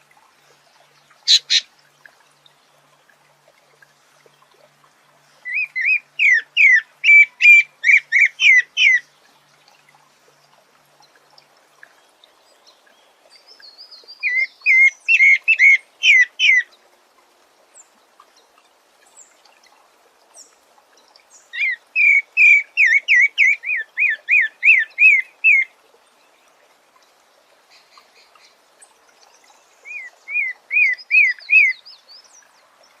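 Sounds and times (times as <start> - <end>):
high bird twitter: 1.3 - 1.7
thrush whistling song: 1.3 - 1.7, 5.5 - 9.0, 14.2 - 16.6, 21.6 - 25.7, 29.8 - 31.9.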